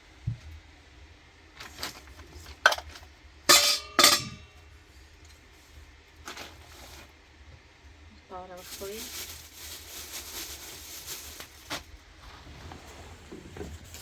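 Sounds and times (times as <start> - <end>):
dishes knocking: 3.5 - 4.5
dishes clinking with metallic ring: 3.5 - 4.6.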